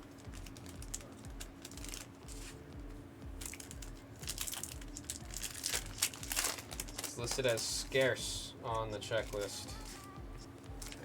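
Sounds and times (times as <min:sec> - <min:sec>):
wrappers rustling and crinkling: 0:00.1 - 0:02.6, 0:03.4 - 0:08.2, 0:09.2 - 0:10.1, 0:10.8 - 0:11.0.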